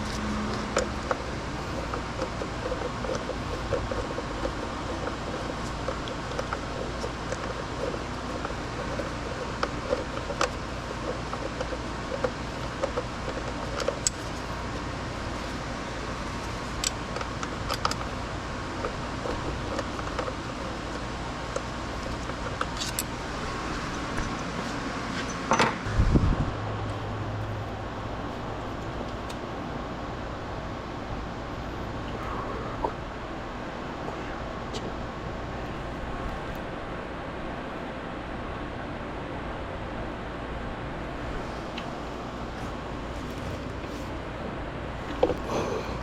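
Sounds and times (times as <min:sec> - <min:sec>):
fan-like hum: 0:00.0 - 0:46.0.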